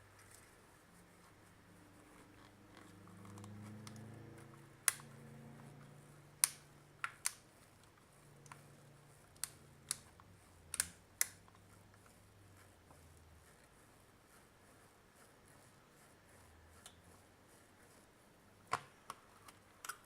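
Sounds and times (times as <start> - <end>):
faint low hum: 0.0 - 20.0
small tools clicking and tapping: 10.7 - 11.4.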